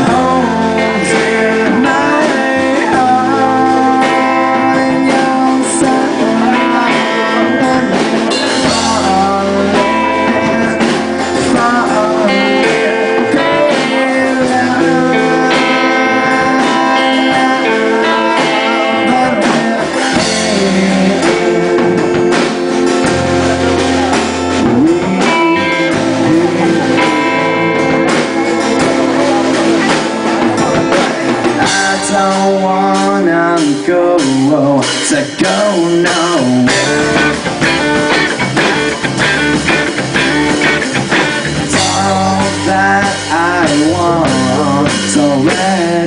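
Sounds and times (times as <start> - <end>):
live band music with guitar: 0.0 - 46.0.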